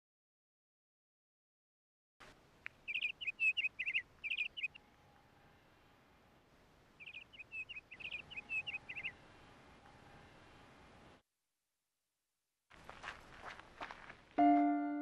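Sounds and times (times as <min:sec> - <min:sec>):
songbird chirping: 0:02.6 - 0:11.1.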